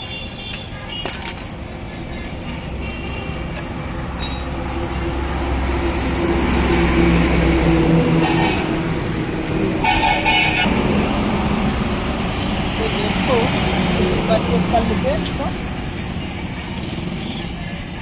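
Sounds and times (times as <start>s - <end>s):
light metal clinks: 2.4s - 4.8s
large vehicle passing rumble: 3.9s - 16.2s.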